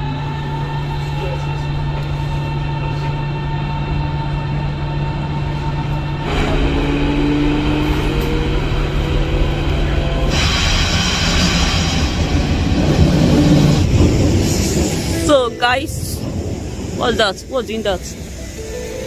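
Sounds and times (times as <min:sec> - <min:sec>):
train running from inside carriage: 0:00.0 - 0:19.0
loud rushing noise: 0:06.2 - 0:19.0.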